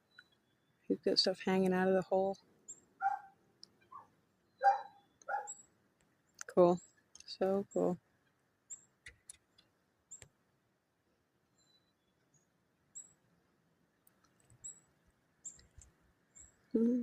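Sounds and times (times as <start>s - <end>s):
high thin bird chirps: 2.7s - 5.8s
faint clicks: 8.2s - 10.4s, 14.0s - 16.6s.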